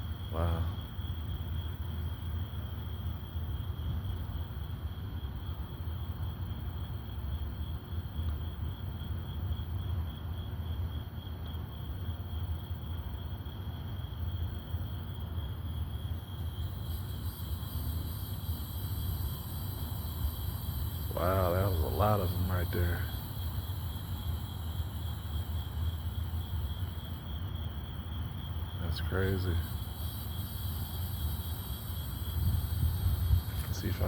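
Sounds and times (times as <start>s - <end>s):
insect trilling: 0.0s - 1.8s, 15.4s - 34.0s
higher-pitched insect trill: 0.0s - 34.0s
low background rumble: 0.0s - 34.0s.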